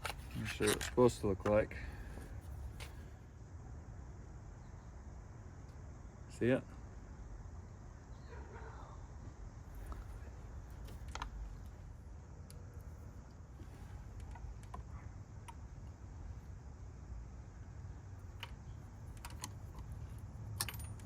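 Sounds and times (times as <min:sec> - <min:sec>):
hand tools clicking and tapping: 0:18.4 - 0:21.0.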